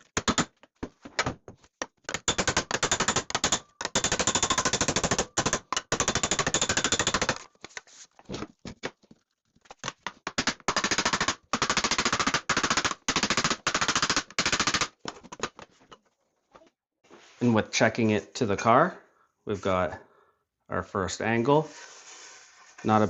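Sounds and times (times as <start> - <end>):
rapid hammer strikes on sheet steel: 2.2 - 7.4.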